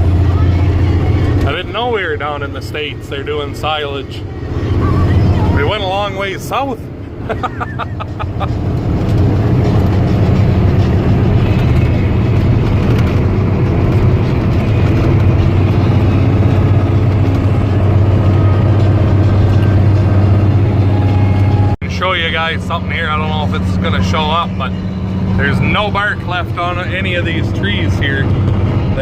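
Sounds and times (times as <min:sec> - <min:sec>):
truck diesel engine drone: 0:00.0 - 0:29.0.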